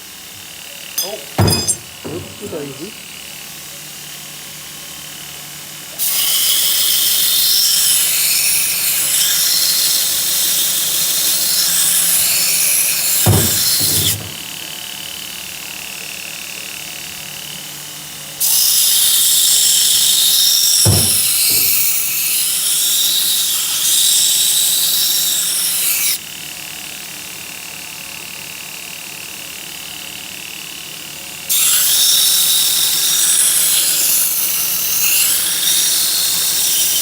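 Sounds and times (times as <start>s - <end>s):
single knock: 1.0s - 2.4s, 13.3s - 14.5s, 20.9s - 21.9s
grinder hissing on metal: 6.0s - 14.7s, 18.4s - 26.1s.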